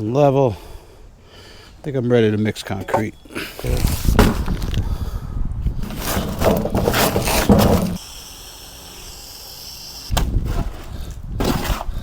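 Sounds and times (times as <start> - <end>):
rough scraping and rustling: 2.9 - 8.1, 10.2 - 12.0.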